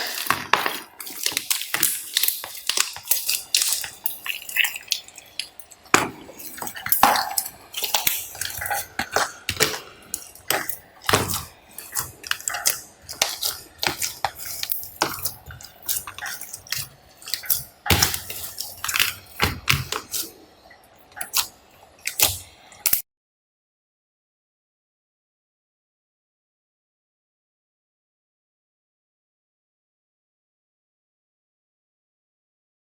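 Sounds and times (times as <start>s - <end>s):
slime squishing with clicks and pops: 0.0s - 23.0s.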